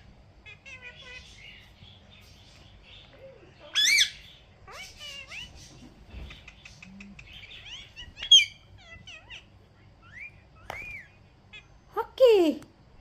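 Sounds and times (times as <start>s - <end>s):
parrot screeching: 3.6s - 5.6s, 7.6s - 11.7s
parrot chirps and whistles: 3.7s - 5.5s, 7.5s - 8.6s, 10.0s - 11.2s.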